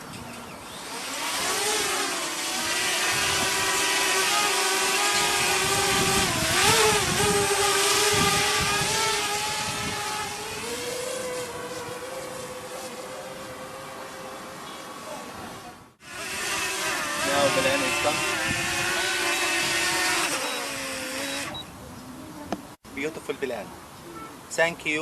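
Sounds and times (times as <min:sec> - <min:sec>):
drone propellers whining: 0:00.5 - 0:14.8, 0:16.0 - 0:21.7.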